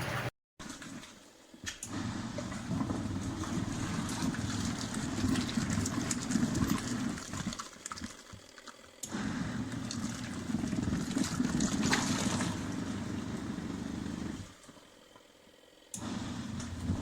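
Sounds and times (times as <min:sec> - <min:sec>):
washing machine motor humming: 0:00.0 - 0:17.0
water churning: 0:01.9 - 0:14.5.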